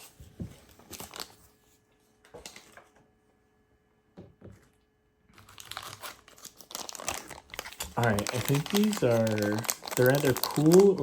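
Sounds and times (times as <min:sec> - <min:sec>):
wrapper crinkling: 0:00.8 - 0:01.4, 0:05.4 - 0:11.0
hands handling toy pieces: 0:05.4 - 0:11.0.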